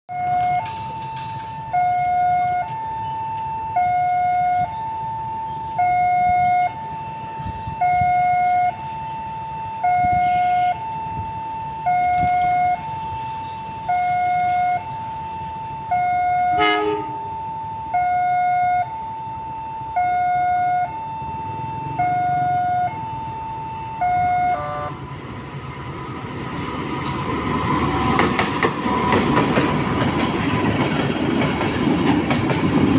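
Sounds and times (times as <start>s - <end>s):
two-tone warning signal: 0.1s - 25.3s.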